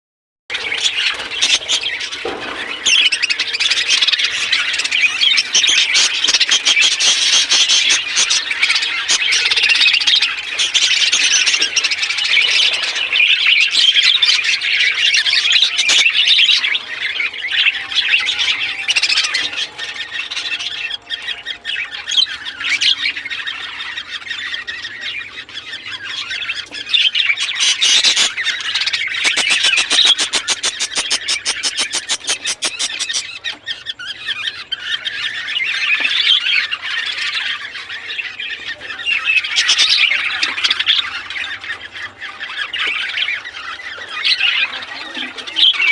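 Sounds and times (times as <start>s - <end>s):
budgerigars chattering and squawking: 0.5s - 45.9s.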